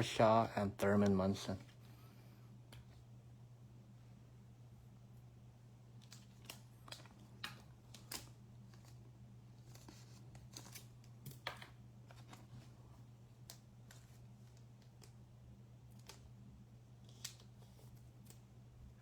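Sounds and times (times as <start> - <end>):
low steady hum: 0.0 - 19.0
cards and wrappers being handled: 6.0 - 11.1.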